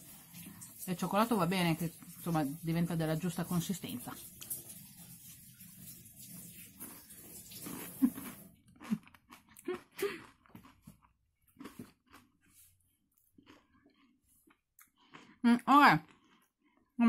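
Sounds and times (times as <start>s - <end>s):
person chewing and smacking lips: 6.8s - 15.4s, 16.0s - 16.9s.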